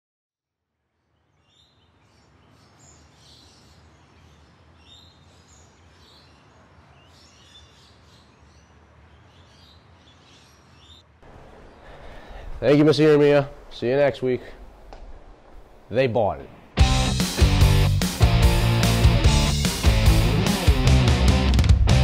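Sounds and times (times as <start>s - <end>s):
songbirds chirping: 0.8s - 20.7s
faint low hum: 1.0s - 16.8s.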